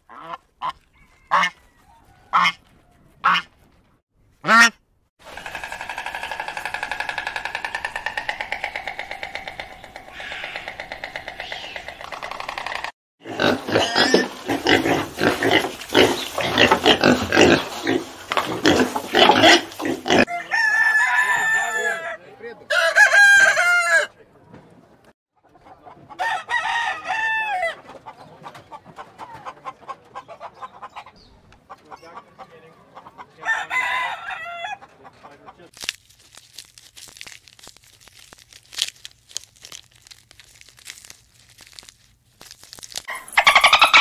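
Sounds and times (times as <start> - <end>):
rooster crowing: 0.9 - 3.2, 5.4 - 11.8, 20.2 - 24.1, 26.2 - 27.8, 33.4 - 34.8
chickens clucking: 5.3 - 20.4, 25.4 - 26.3, 27.6 - 33.5, 34.3 - 35.7, 43.1 - 44.0
piglets squealing and grunting: 13.2 - 20.4, 43.1 - 44.0.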